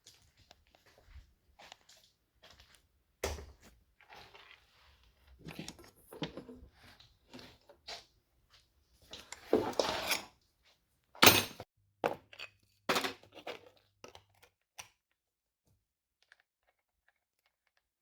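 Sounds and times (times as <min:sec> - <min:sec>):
tools and metal parts clattering: 0:11.2 - 0:11.6.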